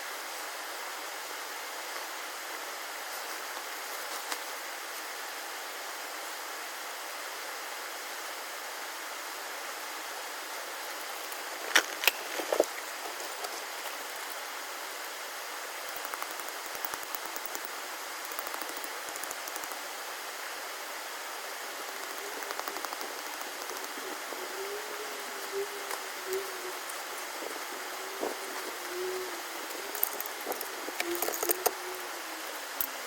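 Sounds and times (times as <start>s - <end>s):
steady rushing hiss: 0.0s - 33.0s
rapid clicking: 15.9s - 19.8s, 21.8s - 24.2s, 29.6s - 31.8s.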